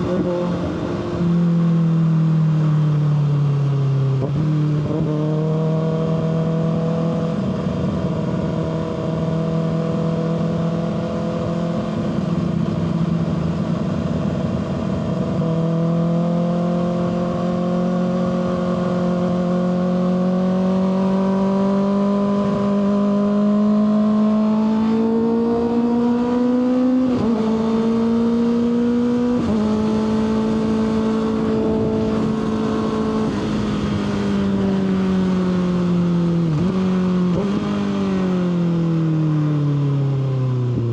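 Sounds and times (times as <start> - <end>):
wind noise: 4.1 - 16.1, 24.8 - 38.2.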